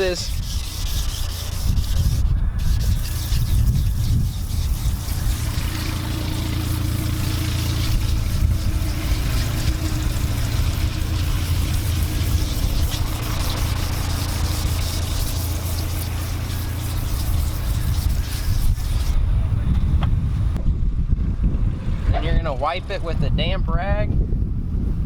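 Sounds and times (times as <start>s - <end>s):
sandpaper scrubbing fibreglass: 0.0s - 19.2s
constant low rumble: 0.0s - 25.0s.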